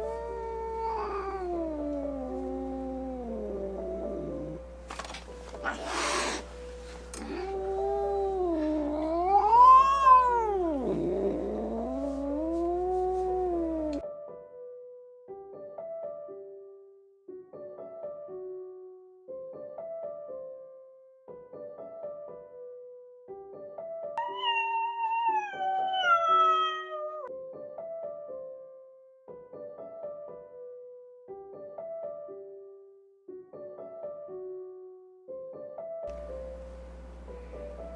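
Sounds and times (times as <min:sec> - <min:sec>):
kitten meowing: 0:00.0 - 0:04.1, 0:07.2 - 0:14.0, 0:24.2 - 0:27.3
soft piano music: 0:00.0 - 0:24.4, 0:25.6 - 0:37.9.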